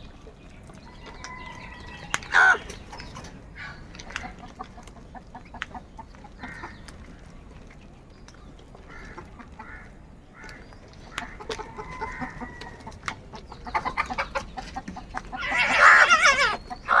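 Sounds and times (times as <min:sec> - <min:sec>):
crows calling: 0:01.2 - 0:02.8, 0:06.3 - 0:06.9, 0:08.8 - 0:12.8, 0:15.3 - 0:17.0.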